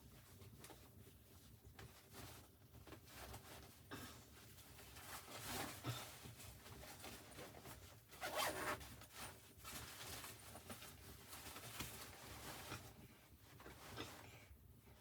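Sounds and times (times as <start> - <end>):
zipper rasping: 8.2 - 8.8.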